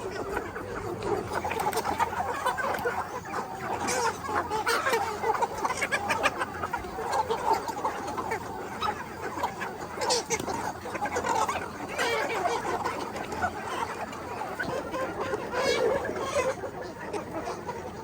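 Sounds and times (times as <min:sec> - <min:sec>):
chickens clucking and chirping: 0:00.0 - 0:18.0.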